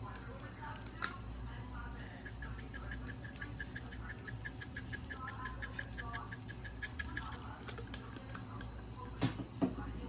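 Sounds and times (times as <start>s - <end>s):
spice container ticking: 2.3s - 8.7s.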